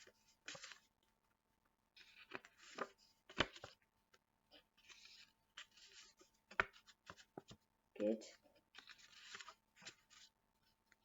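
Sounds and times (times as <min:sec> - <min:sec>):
paper cards rustling: 0:00.0 - 0:00.9, 0:02.0 - 0:03.8, 0:04.7 - 0:07.6, 0:08.6 - 0:10.4.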